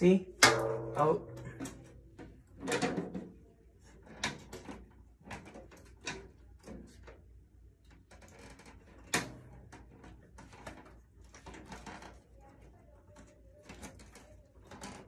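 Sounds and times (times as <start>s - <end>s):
drum hardware knocks and rattles: 0.4s - 3.4s.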